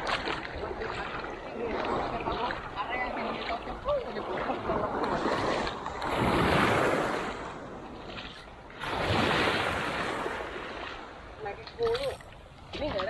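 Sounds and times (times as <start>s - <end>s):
sea waves breaking on shore: 0.0s - 13.0s.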